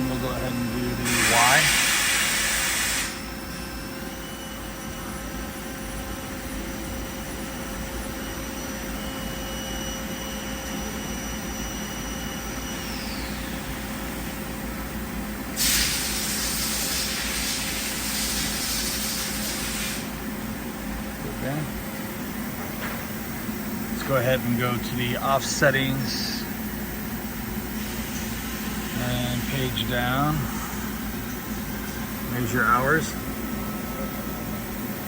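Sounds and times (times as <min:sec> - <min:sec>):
high servo whine: 0:00.0 - 0:14.5, 0:27.6 - 0:35.0
machine hum: 0:00.0 - 0:35.0
loud hiss: 0:01.0 - 0:03.2, 0:15.6 - 0:20.1.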